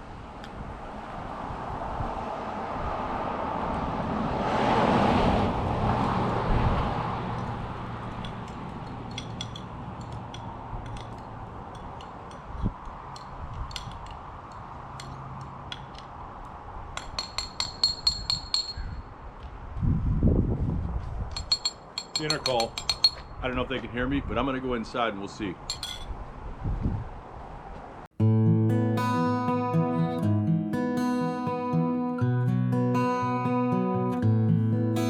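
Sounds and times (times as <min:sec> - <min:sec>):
car passing: 0:00.0 - 0:16.9.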